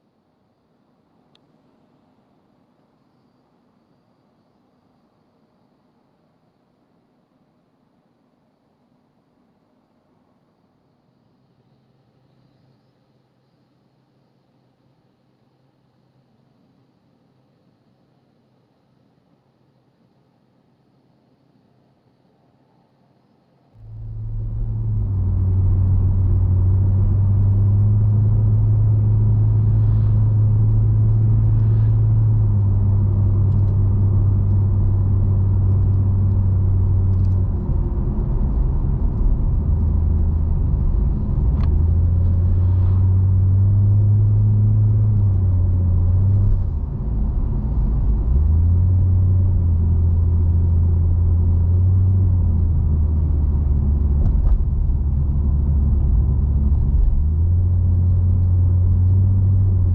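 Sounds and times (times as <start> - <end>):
car engine droning: 23.8 - 59.9
road rumble: 23.8 - 59.9.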